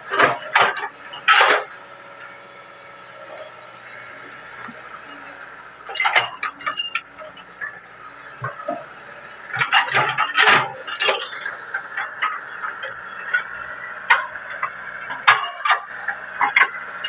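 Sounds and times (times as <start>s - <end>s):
excavator engine running: 0.0s - 17.0s
machine knocks and clanks: 0.1s - 1.8s.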